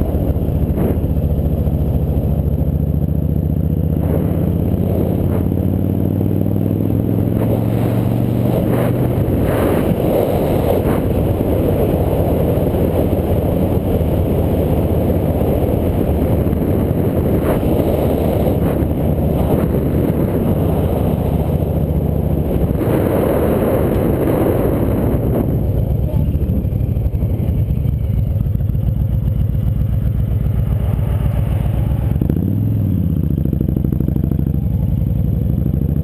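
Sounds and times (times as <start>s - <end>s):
wind rushing on microphone: 0.0s - 2.7s, 3.9s - 28.1s
motorbike engine accelerating: 0.0s - 36.0s.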